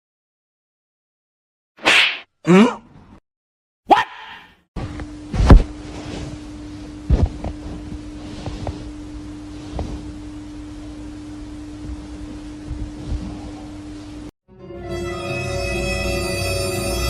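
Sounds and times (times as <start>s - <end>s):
low electrical hum: 4.8s - 14.3s.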